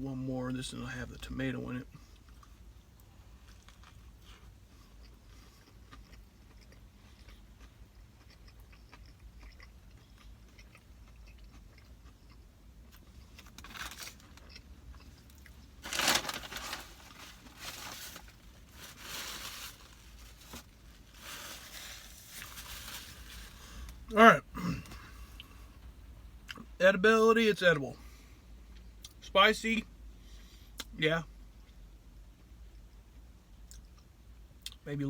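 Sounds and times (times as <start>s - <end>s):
person chewing crunchy food: 2.0s - 16.2s.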